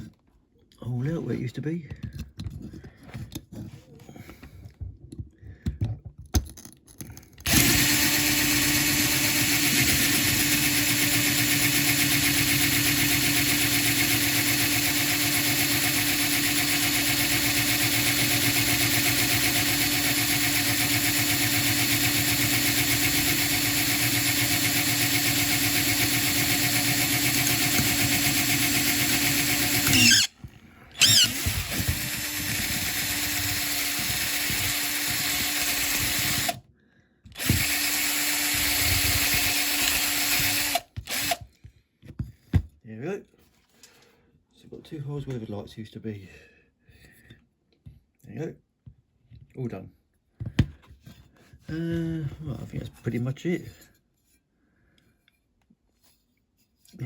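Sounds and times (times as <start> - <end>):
small electric drill drilling metal: 7.4 - 36.6, 37.3 - 41.4.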